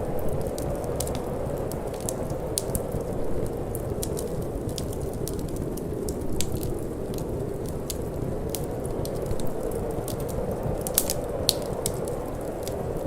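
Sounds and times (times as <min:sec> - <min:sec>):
low wind noise: 0:00.0 - 0:13.0
wood fire crackling: 0:00.0 - 0:13.0.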